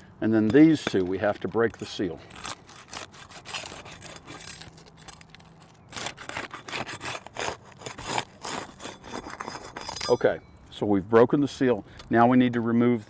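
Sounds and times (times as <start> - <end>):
shingles scraping and tearing: 0.4 - 10.1.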